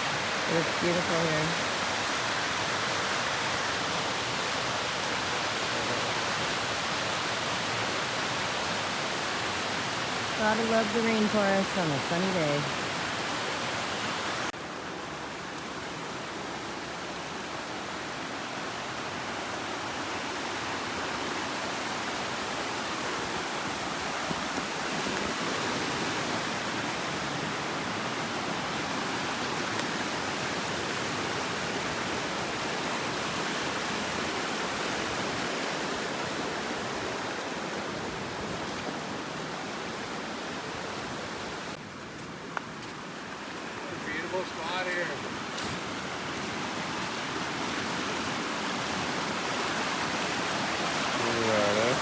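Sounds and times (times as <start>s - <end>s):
river water rushing: 0.0s - 52.0s.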